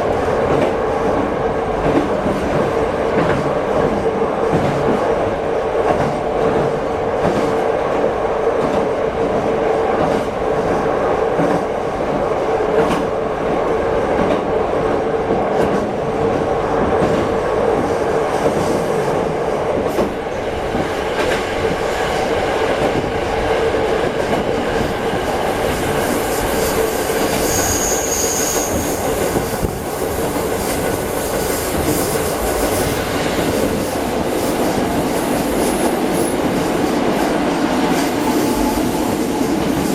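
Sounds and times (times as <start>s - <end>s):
railcar engine and rail noise: 0.0s - 39.9s
high-pitched squeal: 27.2s - 29.2s.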